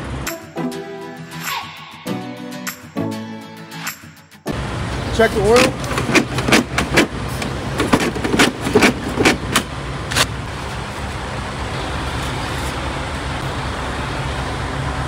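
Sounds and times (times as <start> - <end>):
diesel truck engine idling: 4.5 - 15.0
sharp clicks and knocks: 5.6 - 10.3.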